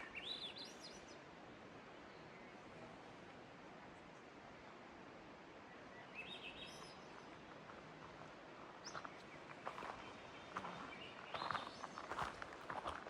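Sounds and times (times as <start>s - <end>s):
bird chirping: 0.0s - 1.2s, 8.8s - 12.3s
faint steady hiss: 0.0s - 13.0s
footsteps crunching on a trail: 7.6s - 13.0s.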